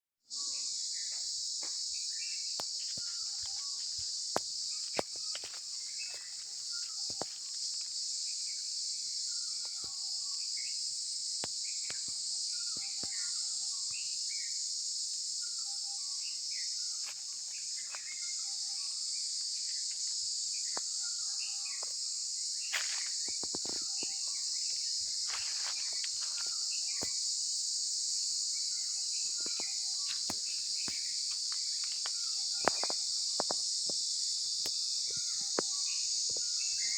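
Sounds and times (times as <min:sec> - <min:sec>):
insects droning: 0:00.3 - 0:36.9
bird calls: 0:02.0 - 0:07.6, 0:20.6 - 0:27.3, 0:28.5 - 0:33.8, 0:34.4 - 0:36.9.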